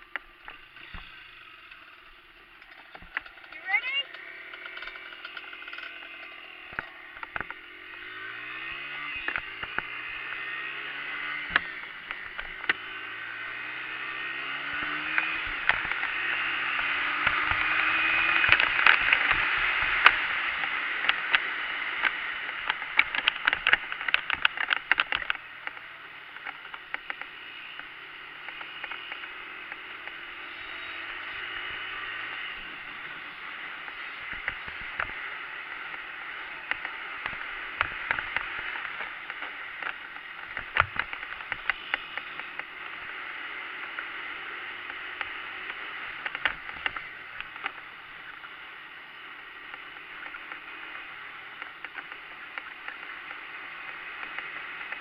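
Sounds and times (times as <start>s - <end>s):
dirt bike engine revving: 0.0s - 48.5s
sharp clicks and knocks: 0.1s - 7.7s, 9.2s - 10.2s, 15.1s - 16.1s, 17.2s - 21.4s, 22.0s - 27.3s, 36.7s - 43.0s, 44.8s - 47.8s.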